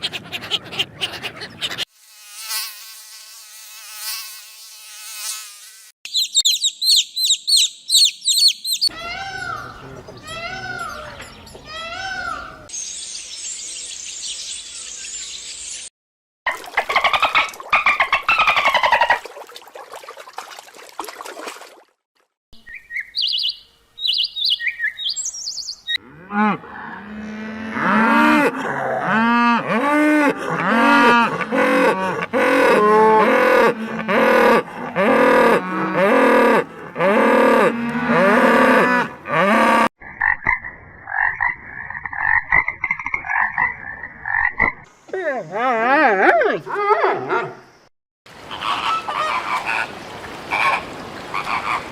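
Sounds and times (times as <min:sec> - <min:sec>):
rapid chirping: 0:06.1 - 0:08.9
repeated arching animal calls: 0:48.4 - 0:51.9.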